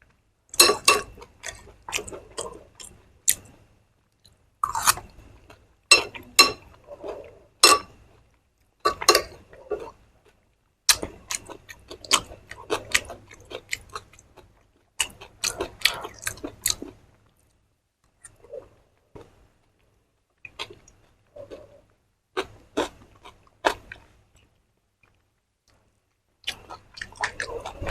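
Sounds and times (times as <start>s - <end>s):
person chewing crunchy food: 0.6s - 3.5s, 4.2s - 7.8s, 8.9s - 17.5s, 26.4s - 27.9s.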